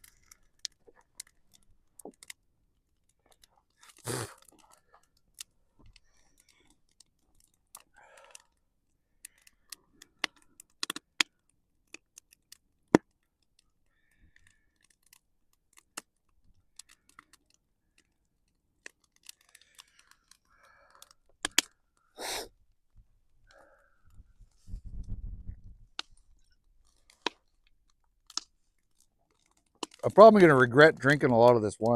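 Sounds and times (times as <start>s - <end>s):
campfire crackling: 0.0s - 11.3s, 18.8s - 22.4s, 25.9s - 31.9s.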